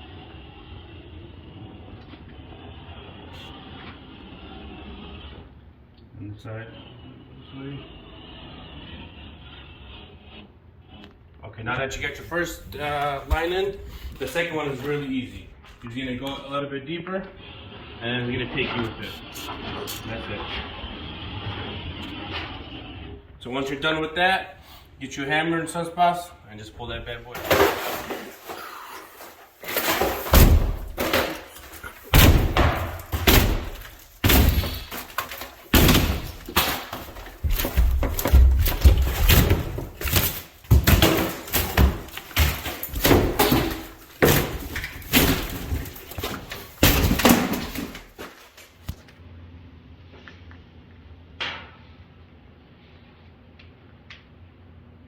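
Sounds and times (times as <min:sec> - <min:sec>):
hammer knocking drywall: 0:29.7 - 0:48.2.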